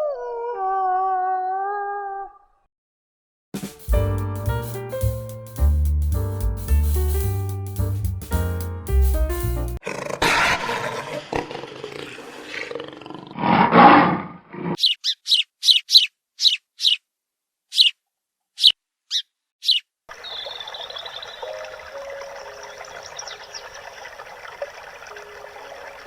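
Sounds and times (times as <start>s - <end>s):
animal roar: 9.8s - 14.8s
birdsong: 14.8s - 17.0s, 18.6s - 26.0s
bird chirping: 14.8s - 17.1s, 17.7s - 18.0s, 18.6s - 26.0s
flowing water: 20.1s - 26.0s.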